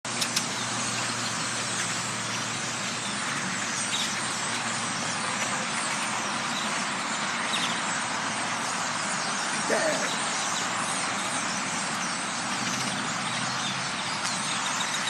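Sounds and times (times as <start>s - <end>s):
flock of birds calling: 0.1s - 15.0s.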